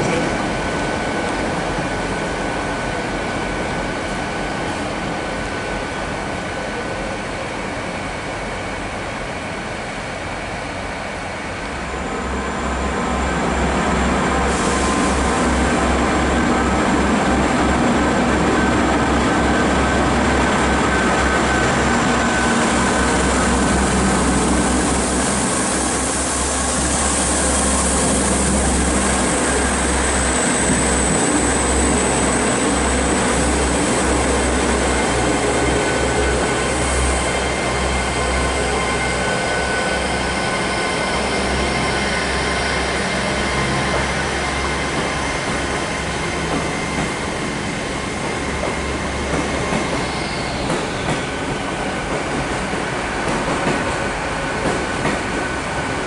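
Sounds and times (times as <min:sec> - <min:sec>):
diesel train engine drone: 0:00.0 - 0:56.0
train wheel squeal: 0:19.5 - 0:52.7.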